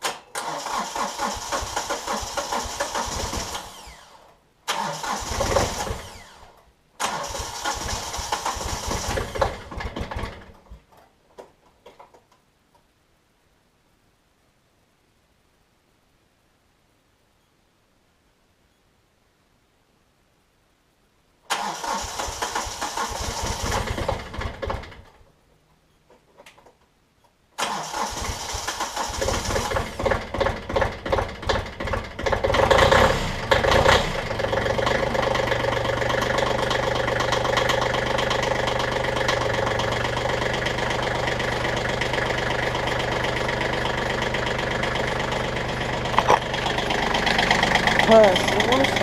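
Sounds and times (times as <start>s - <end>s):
starter motor cranking: 0.0s - 10.4s, 21.5s - 25.0s, 27.6s - 49.0s
diesel engine idling: 29.1s - 49.0s.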